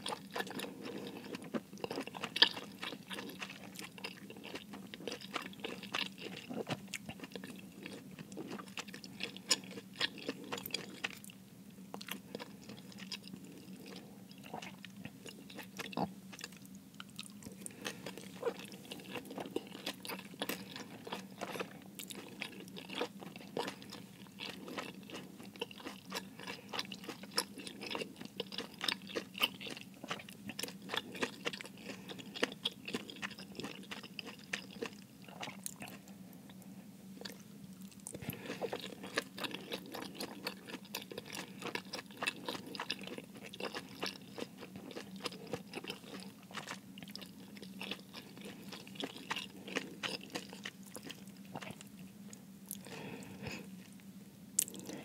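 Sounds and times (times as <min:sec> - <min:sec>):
person chewing: 0:00.0 - 0:11.3, 0:11.9 - 0:36.2, 0:37.2 - 0:54.0, 0:54.6 - 0:55.0.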